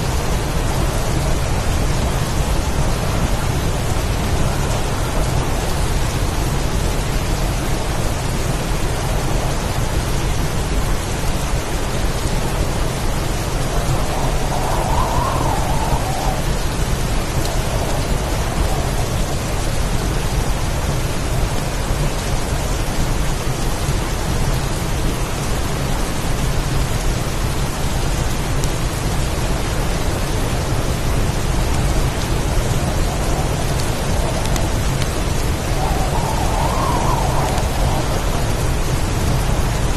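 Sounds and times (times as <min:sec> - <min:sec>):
heavy rain pouring: 0:00.0 - 0:39.9
low rumble: 0:31.2 - 0:39.9.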